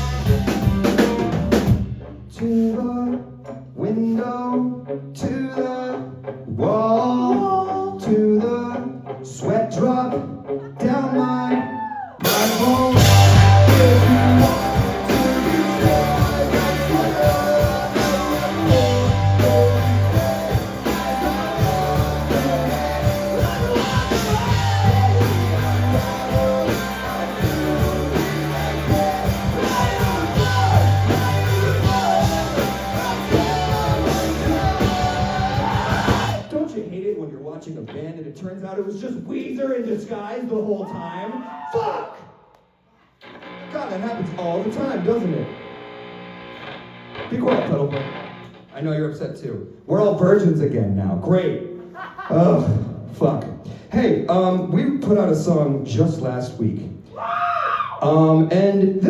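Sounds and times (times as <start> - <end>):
rock band playing live: 0.0 - 36.6, 43.2 - 48.6
person singing: 3.8 - 36.5.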